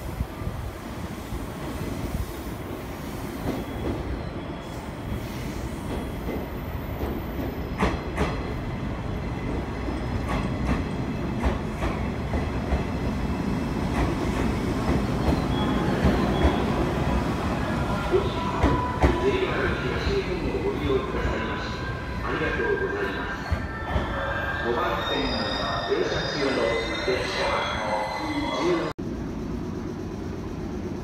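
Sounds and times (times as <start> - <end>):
train rumble: 5.2 - 22.4.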